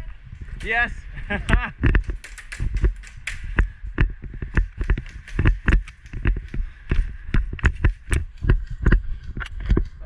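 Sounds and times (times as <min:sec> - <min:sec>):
running footsteps thudding: 0:01.6 - 0:10.0.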